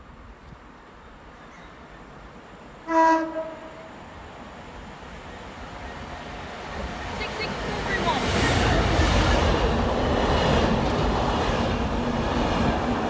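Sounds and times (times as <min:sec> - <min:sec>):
train rumbling: 0:00.1 - 0:13.0
train horn blast: 0:02.8 - 0:04.1.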